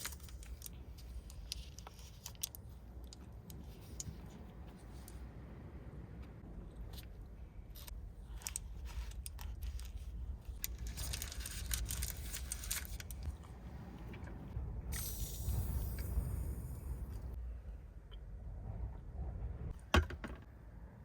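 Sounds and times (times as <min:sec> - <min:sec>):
rustling and crinkling handling: 0:00.0 - 0:05.2, 0:07.8 - 0:13.6
low rumble: 0:05.0 - 0:19.9.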